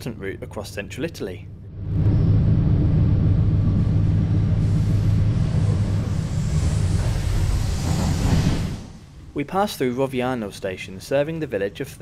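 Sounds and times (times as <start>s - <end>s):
train rumble and hum: 1.4s - 9.8s
hiss: 4.6s - 9.3s.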